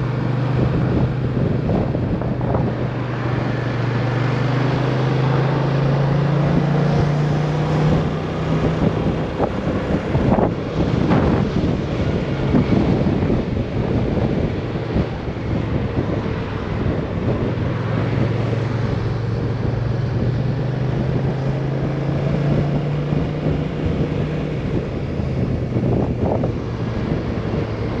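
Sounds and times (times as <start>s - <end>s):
scooter engine hum: 0.0s - 28.0s
wind buffeting microphone: 0.0s - 28.0s.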